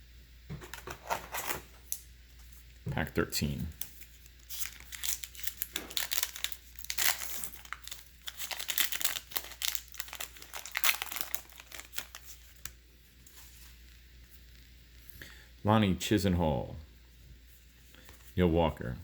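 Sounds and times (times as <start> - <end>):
plastic wrapper crinkling and tearing: 3.7 - 14.7.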